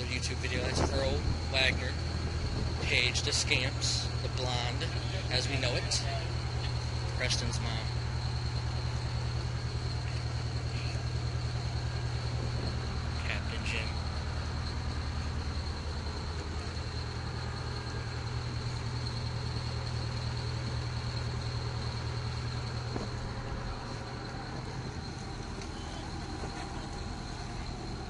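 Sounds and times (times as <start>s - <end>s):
boat engine low pulsing hum: 0.0s - 28.0s
thin high whine: 0.0s - 28.0s.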